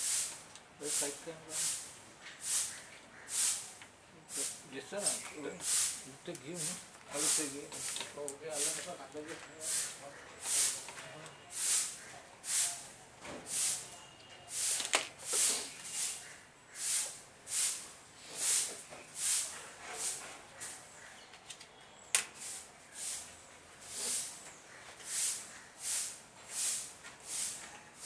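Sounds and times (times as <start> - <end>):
rhythmic hissing strokes: 0.0 - 9.0, 9.6 - 12.9.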